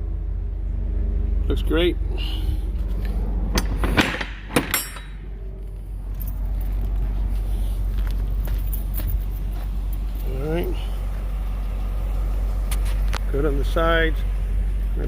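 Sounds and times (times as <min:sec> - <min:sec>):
low rumble: 0:00.0 - 0:13.6
metallic clanks and knocks: 0:03.5 - 0:05.4.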